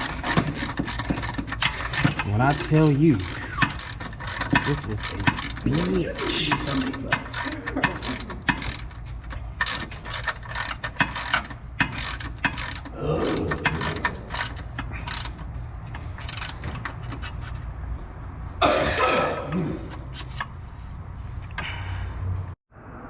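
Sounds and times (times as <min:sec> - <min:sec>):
ratchet wrench clicking: 0:00.0 - 0:17.4.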